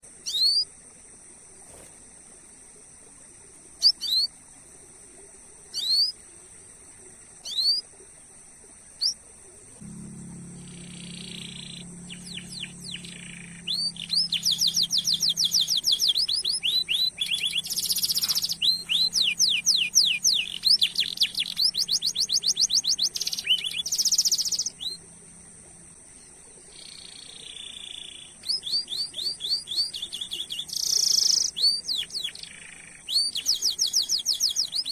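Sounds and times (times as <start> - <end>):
canary chirping and trilling: 10.6 - 25.0, 26.7 - 34.9.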